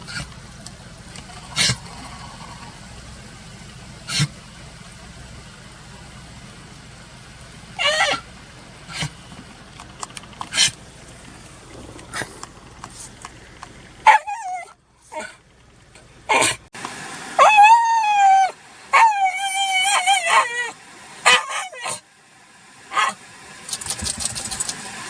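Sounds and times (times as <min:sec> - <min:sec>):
dog whining: 0:07.8 - 0:08.3, 0:17.4 - 0:20.7
dog yipping: 0:07.8 - 0:08.3, 0:14.0 - 0:15.4, 0:17.4 - 0:22.0, 0:22.9 - 0:23.2.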